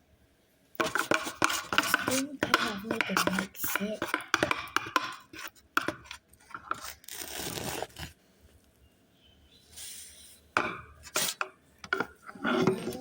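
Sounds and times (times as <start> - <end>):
slime rustling and crackling: 6.6 - 8.2.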